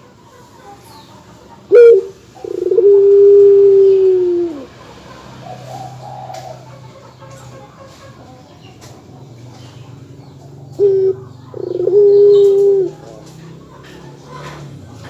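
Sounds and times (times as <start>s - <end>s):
dove cooing: 1.6s - 7.4s, 9.8s - 14.7s.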